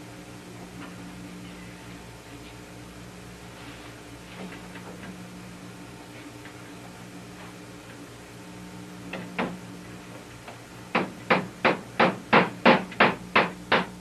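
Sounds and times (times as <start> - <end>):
hammer striking nails into wood: 10.9 - 13.9.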